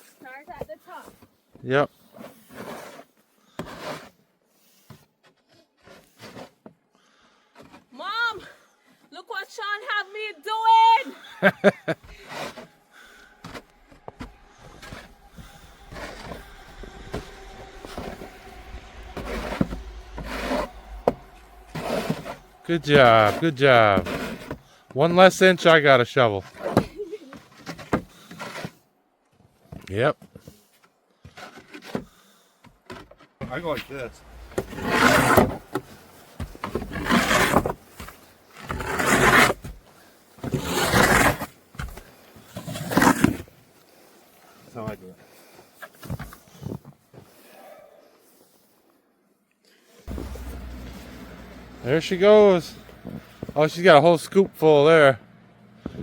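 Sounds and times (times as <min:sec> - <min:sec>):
snow shovel scraping snow: 0:01.9 - 0:05.0, 0:05.8 - 0:08.2, 0:11.2 - 0:25.8, 0:26.4 - 0:28.8, 0:33.5 - 0:47.4, 0:50.1 - 0:54.1
low wind rumble on microphone: 0:14.0 - 0:23.2.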